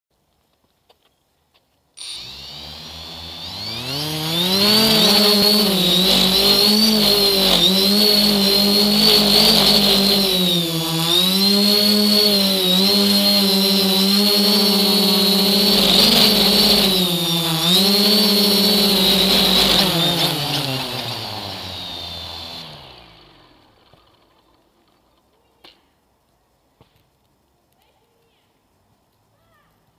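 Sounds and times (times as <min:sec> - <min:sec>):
motor whining: 0:02.0 - 0:24.0.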